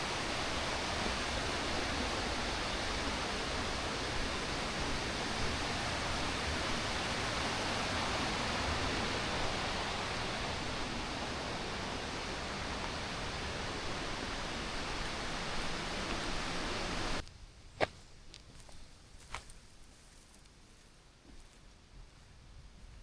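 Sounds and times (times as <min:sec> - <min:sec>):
rushing water: 0:00.0 - 0:17.2.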